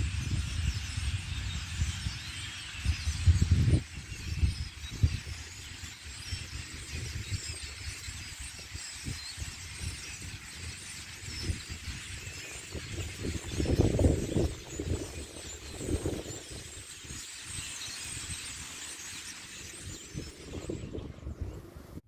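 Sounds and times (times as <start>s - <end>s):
wind buffeting microphone: 0.0s - 18.4s, 19.7s - 22.0s
flock of birds chirping: 0.0s - 22.0s.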